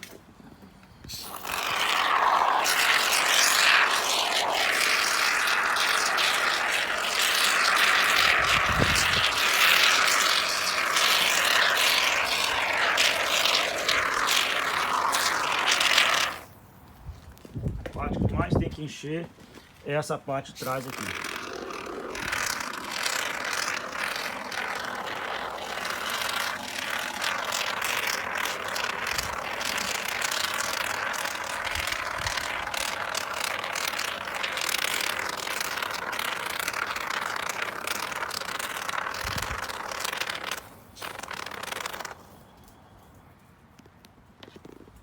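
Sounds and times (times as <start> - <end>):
aerosol foam can spraying: 1.1 - 16.5, 20.6 - 42.2.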